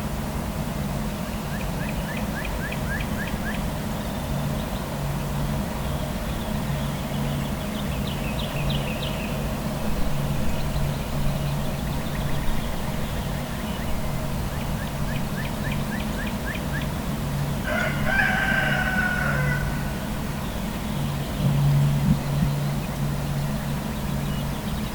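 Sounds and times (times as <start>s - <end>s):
low traffic rumble: 0.0s - 24.9s
small birds trilling: 1.4s - 24.9s
rooster crowing: 17.6s - 20.4s.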